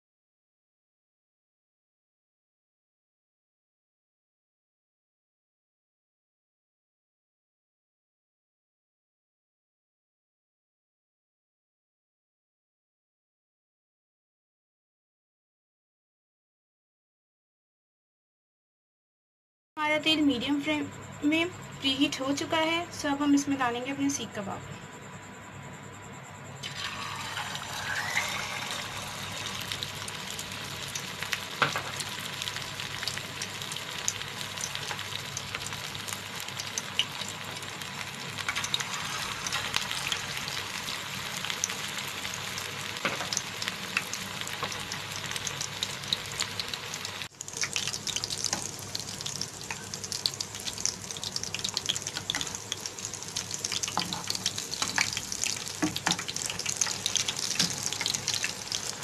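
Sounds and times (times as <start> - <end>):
kebabs sizzling in hot oil: 26.6 - 59.0.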